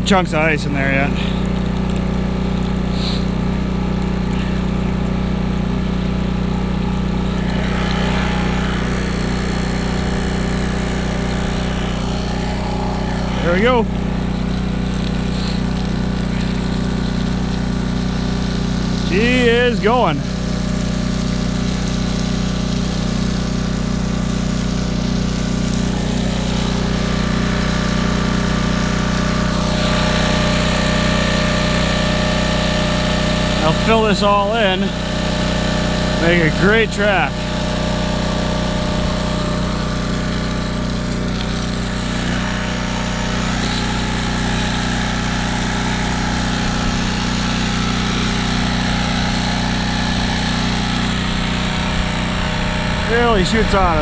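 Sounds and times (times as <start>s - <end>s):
generator engine running: 0.0s - 54.0s
hose blasting water: 0.0s - 54.0s.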